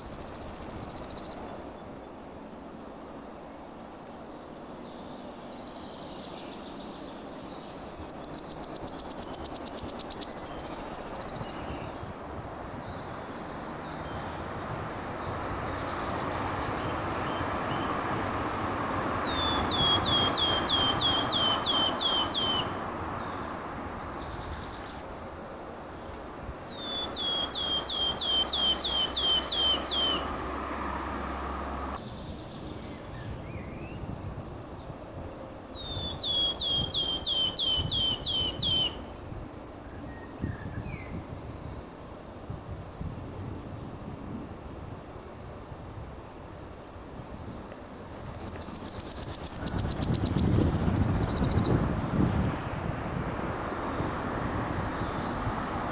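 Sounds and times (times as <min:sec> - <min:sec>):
songbird singing: 0:00.0 - 0:52.0, 0:53.2 - 0:55.9
steady background noise: 0:00.0 - 0:55.9.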